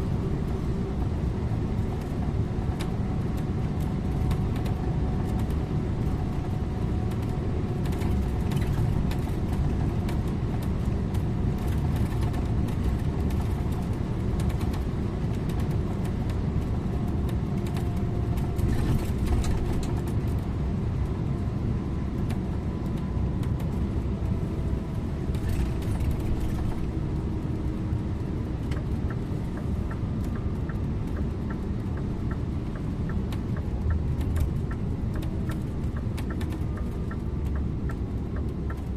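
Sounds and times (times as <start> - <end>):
bus engine and tyre rumble: 0.0 - 38.9
faint regular ticking: 28.7 - 38.9.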